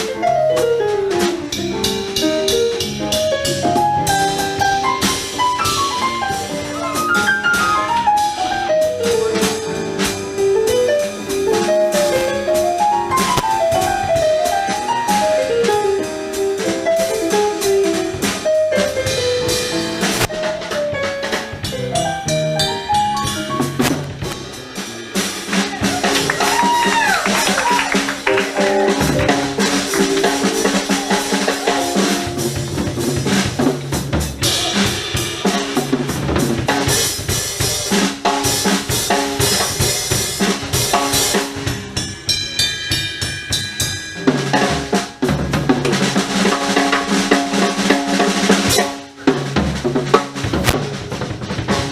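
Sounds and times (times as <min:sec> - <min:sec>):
bass: 0:00.0 - 0:51.9
drum kit: 0:00.0 - 0:51.9
melodic solo line: 0:05.6 - 0:08.8.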